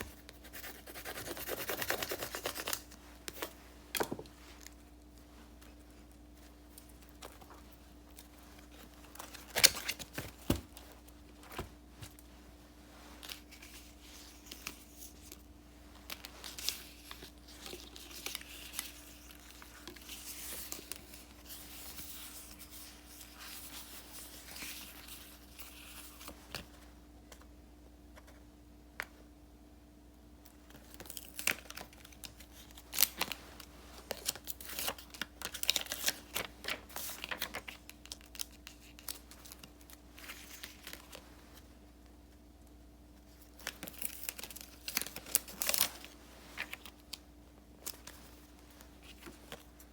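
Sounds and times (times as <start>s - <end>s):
faint steady hum: 0.0s - 49.9s
paper sheets rustling: 30.9s - 41.2s.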